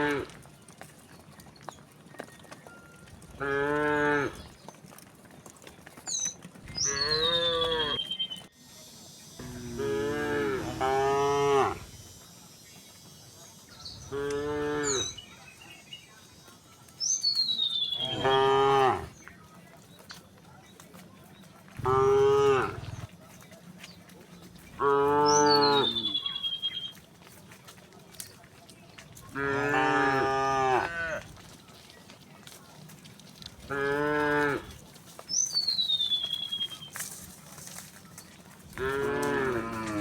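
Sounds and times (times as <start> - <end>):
cows mooing: 0.0 - 0.4, 3.3 - 4.5, 6.6 - 8.1, 9.4 - 12.1, 14.0 - 15.2, 18.0 - 19.2, 21.8 - 23.1, 24.7 - 26.2, 29.3 - 31.4, 33.6 - 34.8, 38.8 - 40.0.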